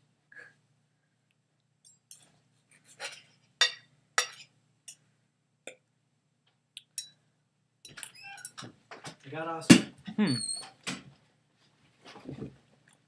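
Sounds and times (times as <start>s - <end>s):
utensils clinking against plate: 1.8s - 5.0s, 7.9s - 8.6s.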